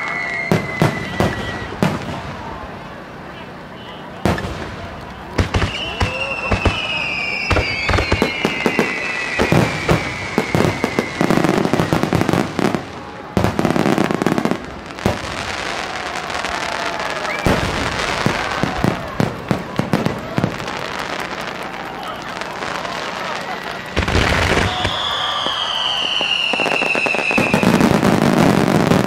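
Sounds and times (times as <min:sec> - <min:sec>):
fireworks bursting: 0:00.0 - 0:29.0
fireworks whistling: 0:00.0 - 0:29.0.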